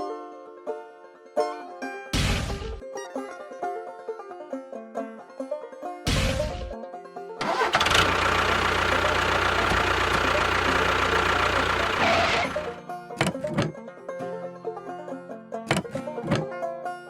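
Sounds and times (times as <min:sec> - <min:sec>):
short engine burst: 0:07.4 - 0:12.8
engine running steadily: 0:07.4 - 0:13.7.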